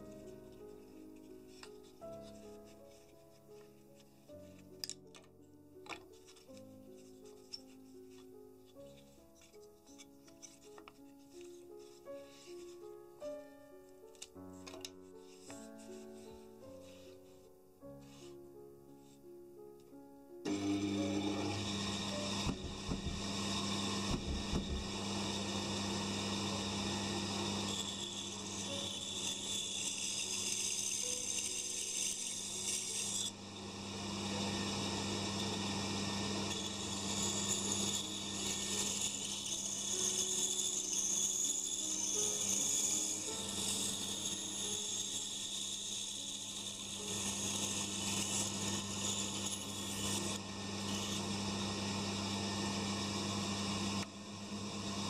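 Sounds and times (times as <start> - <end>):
saw blade cutting wood: 20.5 - 52.8
band saw humming: 20.5 - 55.0.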